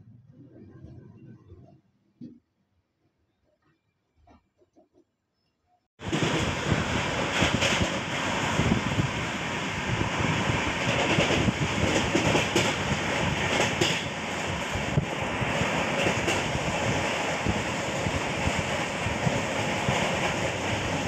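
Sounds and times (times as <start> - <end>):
train wheels rumbling on track: 6.0 - 21.0
train wheels clacking: 7.2 - 8.1, 10.4 - 14.7, 15.8 - 21.0.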